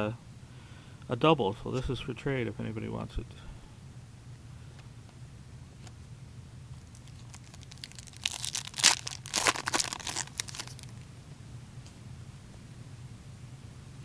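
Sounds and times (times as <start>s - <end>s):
wrapper tearing and crinkling: 6.9s - 11.0s.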